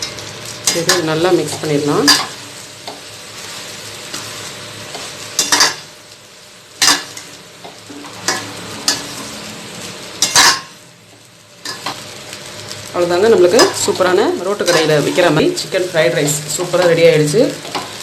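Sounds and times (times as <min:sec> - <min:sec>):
rice sizzling in a pan: 0:00.0 - 0:18.0.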